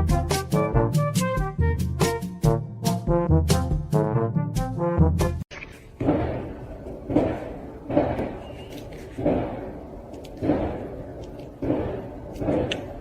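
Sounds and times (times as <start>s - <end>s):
heavy thuds: 6.0s - 13.0s.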